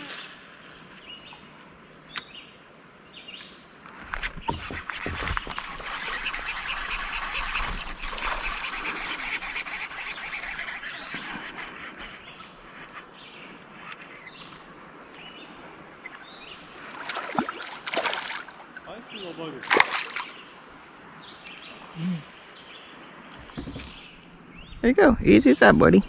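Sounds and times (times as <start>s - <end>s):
steady high-pitched hum and hiss: 0.0s - 26.0s
birds chirping: 9.9s - 26.0s.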